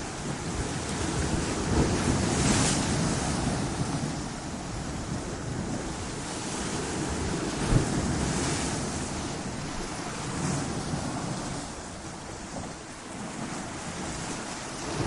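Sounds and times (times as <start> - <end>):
ocean waves crashing on rocks: 0.0 - 15.0.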